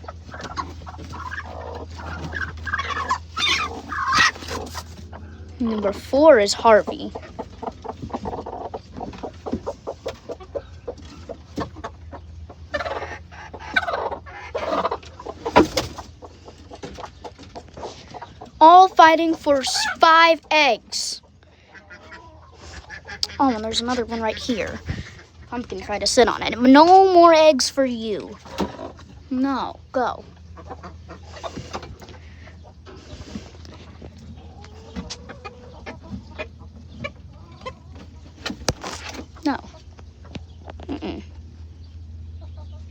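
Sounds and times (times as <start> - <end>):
harsh hen calls: 0.0 - 16.4, 17.7 - 25.5
hens clucking: 0.0 - 42.9.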